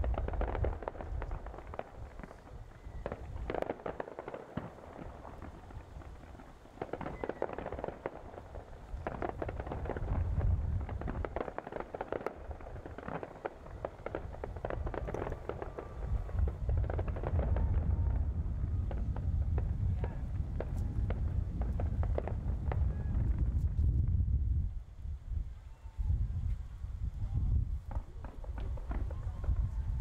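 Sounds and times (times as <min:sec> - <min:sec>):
fireworks crackling and popping: 0:00.0 - 0:25.6, 0:26.4 - 0:30.0
low rumbling booms: 0:14.0 - 0:24.8.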